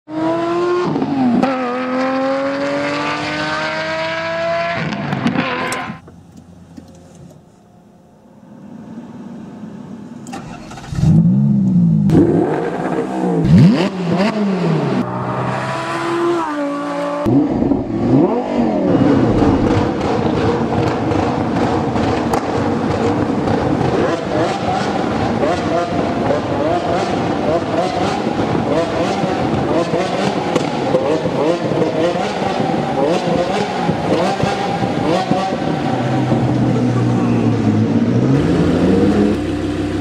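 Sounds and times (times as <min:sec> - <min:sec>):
sharp engine revs: 0:12.1 - 0:21.3
engine pulling hard: 0:17.2 - 0:40.0.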